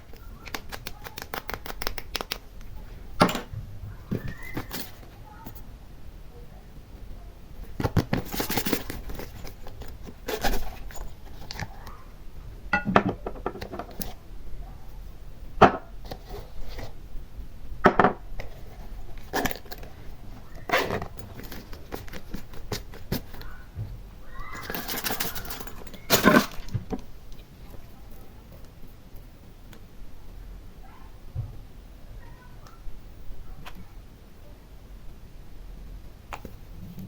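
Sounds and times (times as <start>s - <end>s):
slime snapping and crackling: 0.2s - 2.5s.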